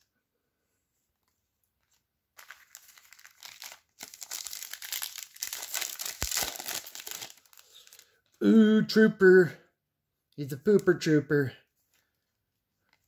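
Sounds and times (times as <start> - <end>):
plastic wrapper tearing and crinkling: 2.4 - 8.2.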